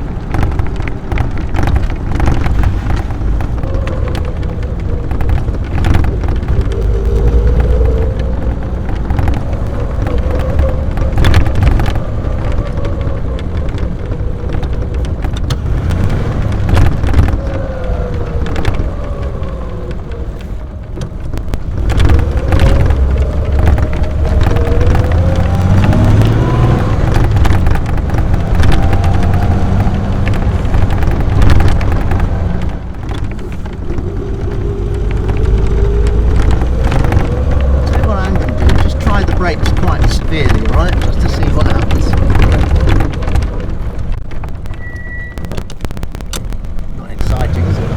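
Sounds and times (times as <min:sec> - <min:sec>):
car engine rumbling with whine: 0:00.0 - 0:47.9
road noise: 0:00.0 - 0:47.9
sharp knocks or rattles: 0:00.0 - 0:47.9
wind noise: 0:00.0 - 0:47.9.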